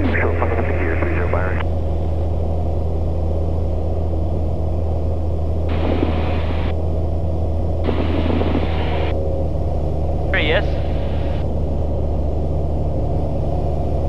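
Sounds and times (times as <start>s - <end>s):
intercom hiss: 0.0s - 1.6s
airplane engine drone: 0.0s - 14.0s.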